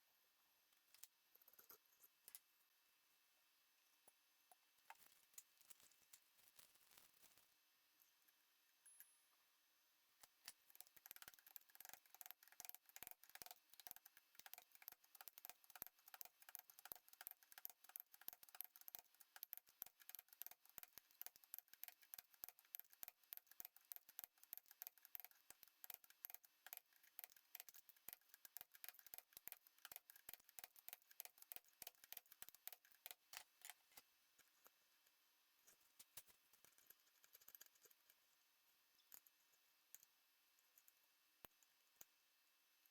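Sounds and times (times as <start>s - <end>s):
faint rapid clicking: 10.2s - 34.8s, 35.7s - 38.2s.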